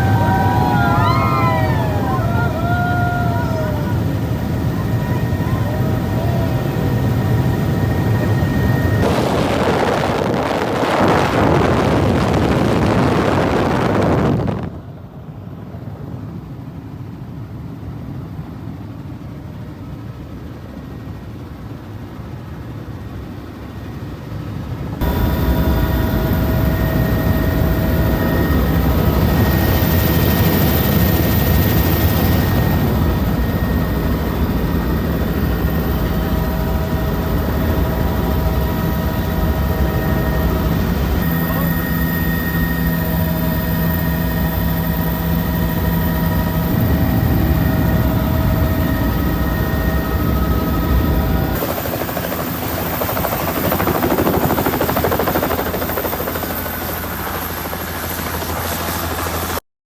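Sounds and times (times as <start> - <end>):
helicopter drone with whine: 0.0 - 59.6
rushing noise: 9.0 - 14.7.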